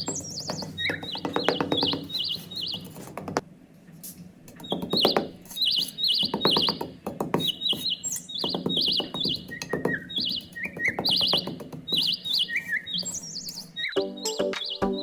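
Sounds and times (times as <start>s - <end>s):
high bird-like chirps: 0.0s - 3.1s, 4.5s - 15.0s
sharp clicks and knocks: 0.0s - 12.3s
soft background music: 13.8s - 15.0s.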